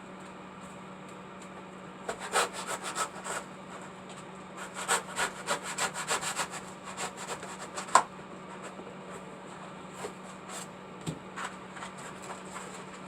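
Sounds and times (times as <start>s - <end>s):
hand saw scraping strokes: 2.1s - 3.5s, 4.6s - 8.7s.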